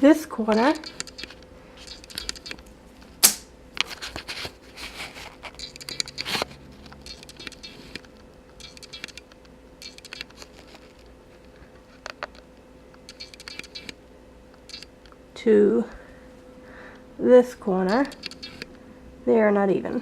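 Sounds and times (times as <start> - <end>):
faint steady hum: 0.0 - 20.0
camera handling noise: 0.5 - 2.6, 5.2 - 11.1, 12.0 - 14.0, 17.9 - 18.7
sharp click: 0.5 - 2.6, 3.2 - 3.5, 5.6 - 6.3, 6.9 - 10.4, 13.0 - 14.0, 14.6 - 14.9, 17.9 - 18.7.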